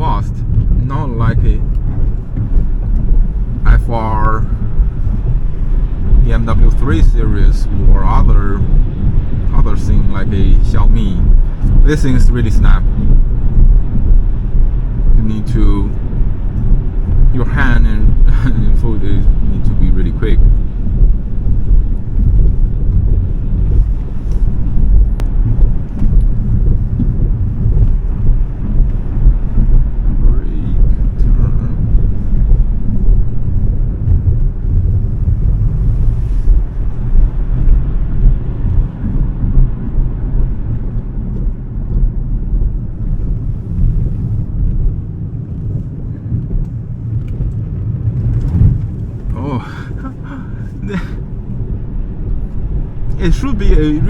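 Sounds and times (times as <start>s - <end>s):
road and tyre rumble: 0.0s - 54.0s.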